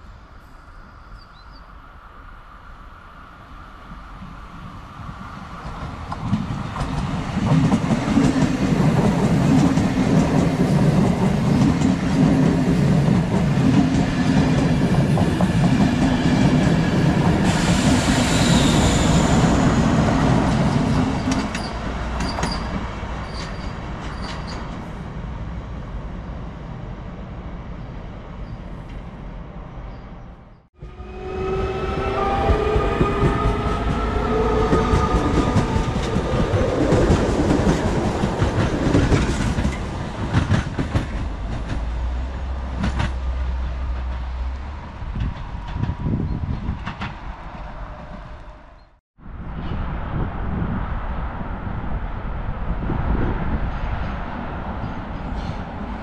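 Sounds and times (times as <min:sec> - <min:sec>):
train rumble and wheel noise: 0:00.0 - 0:56.0.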